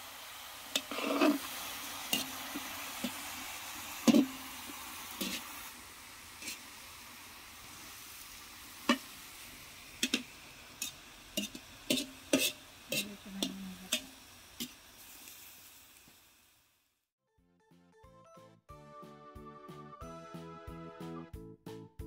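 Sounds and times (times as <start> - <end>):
food sizzling: 0.0 - 17.1
metal ladle scraping a wok: 0.7 - 3.4, 4.0 - 5.6, 6.4 - 6.8, 10.0 - 14.8.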